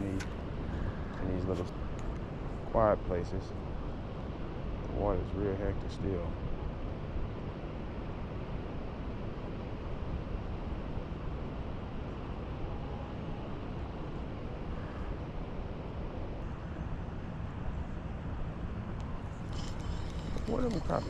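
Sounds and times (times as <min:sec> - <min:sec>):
wind buffeting microphone: 0:18.6 - 0:21.0.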